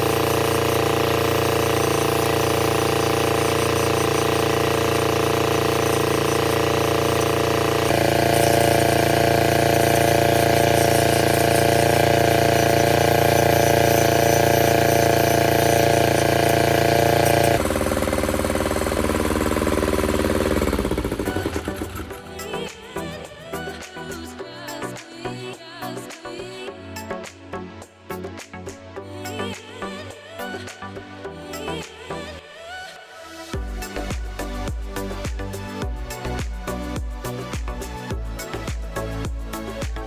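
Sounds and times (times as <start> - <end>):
generator engine running: 0.0 - 23.2.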